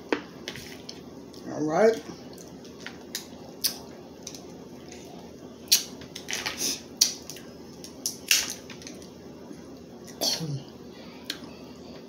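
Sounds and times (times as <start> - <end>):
crab shells cracking: 5.7 - 9.1.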